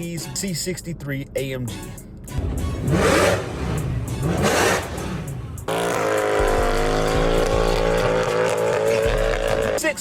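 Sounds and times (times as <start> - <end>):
car engine revving: 2.4 - 9.8.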